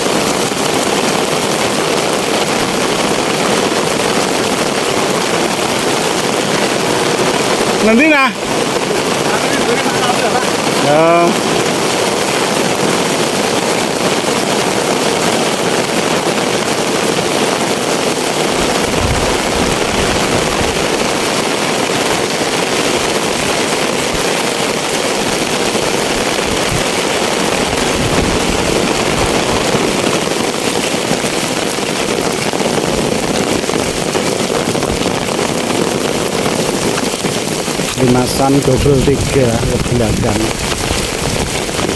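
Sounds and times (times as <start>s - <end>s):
heavy rain pouring: 0.0s - 41.9s
low rumbles: 18.4s - 22.0s, 36.8s - 41.9s.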